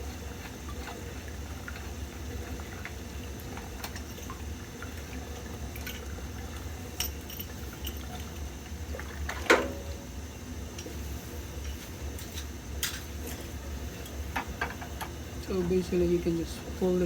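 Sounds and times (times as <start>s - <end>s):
steady low hum: 0.0s - 17.0s
water dripping and trickling: 0.4s - 9.5s.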